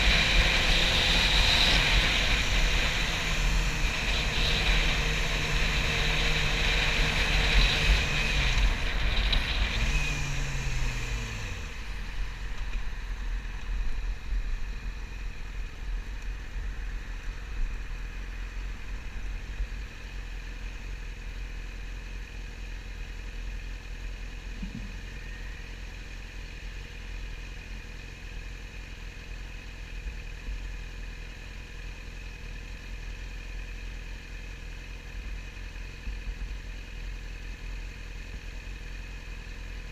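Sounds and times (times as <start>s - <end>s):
motorcycle engine slowing then idling: 0.0s - 39.9s.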